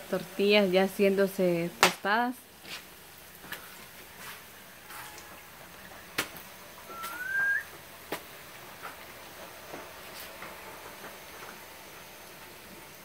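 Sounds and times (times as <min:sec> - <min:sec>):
tortillas sizzling in hot oil: 0:00.0 - 0:13.0
whistled note rising: 0:06.9 - 0:07.8.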